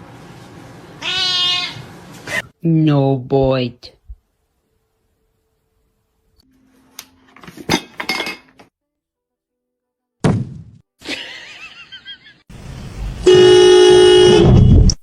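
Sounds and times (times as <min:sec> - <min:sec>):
hard objects clinking and knocking: 0:07.4 - 0:08.7.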